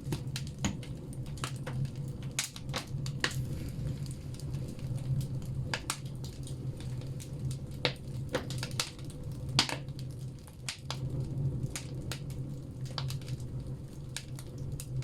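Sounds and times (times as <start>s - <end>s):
firewood crackling and popping: 0.0s - 15.0s
steady low hum: 2.9s - 7.7s.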